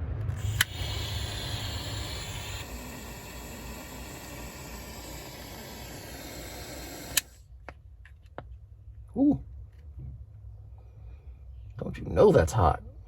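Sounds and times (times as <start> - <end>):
butane torch hissing: 0.3 - 7.4.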